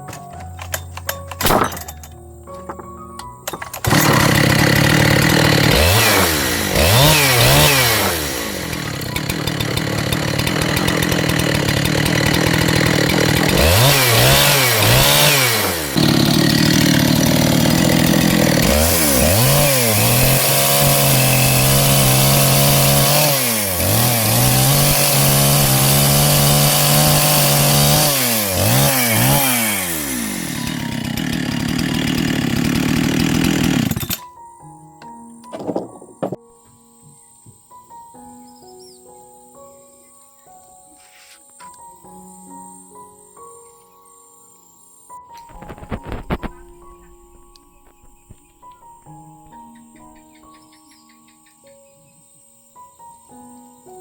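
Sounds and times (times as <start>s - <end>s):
chainsaw engine revving: 3.5s - 34.2s, 45.5s - 46.7s.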